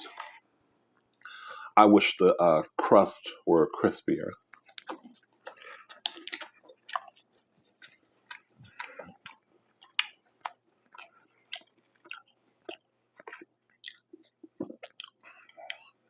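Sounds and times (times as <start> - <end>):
wet chewing mouth clicks and smacks: 4.4 - 16.0.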